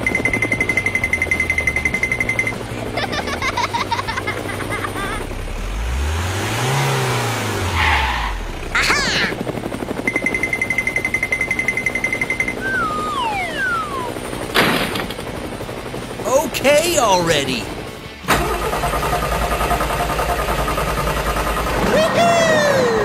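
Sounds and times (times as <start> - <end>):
helicopter rotor chop: 0.0 - 23.0
high beeping tone: 11.7 - 14.2
downward sliding whistles: 12.6 - 14.1.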